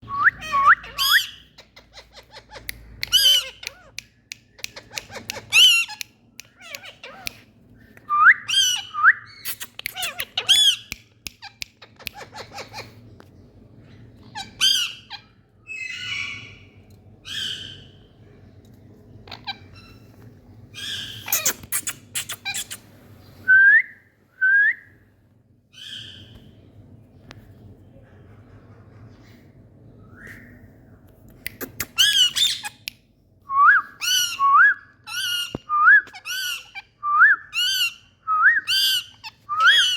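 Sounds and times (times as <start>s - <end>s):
parakeets squawking: 0.3s - 7.5s, 8.4s - 13.0s, 14.2s - 18.1s, 19.2s - 20.1s, 20.7s - 22.8s, 31.9s - 32.8s, 35.1s - 37.0s, 38.7s - 39.9s.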